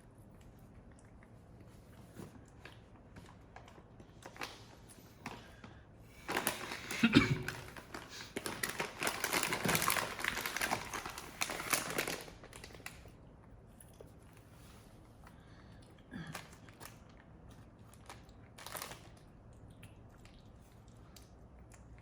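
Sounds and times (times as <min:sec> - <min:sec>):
dense crackling and crinkling: 0:01.4 - 0:15.2, 0:16.2 - 0:19.3.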